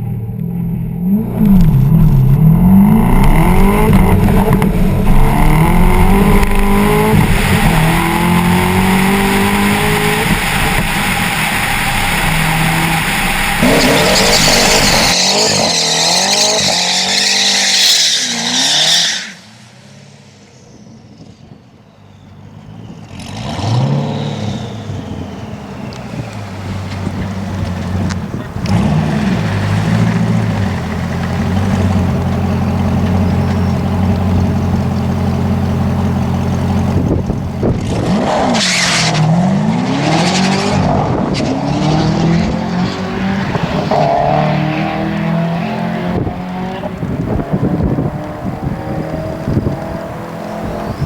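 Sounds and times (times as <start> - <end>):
car engine running hard: 0.0 - 18.6, 22.0 - 51.0.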